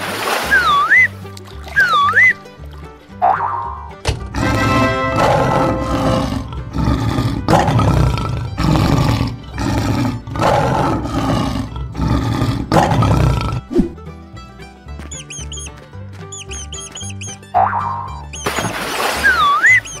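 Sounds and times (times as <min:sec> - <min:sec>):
background music: 0:00.0 - 0:20.0
lion roars: 0:04.4 - 0:13.8.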